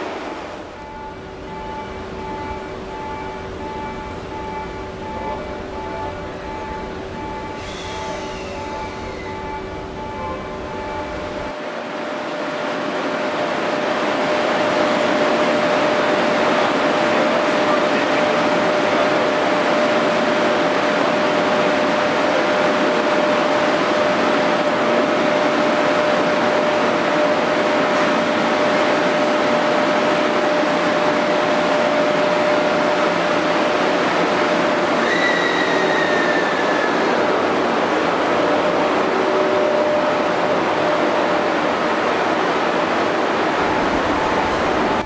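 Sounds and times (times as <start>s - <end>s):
falling whine: 0.0s - 21.7s, 43.5s - 45.0s
electric locomotive running hum: 0.0s - 45.0s
train coaches rolling past: 0.0s - 45.0s.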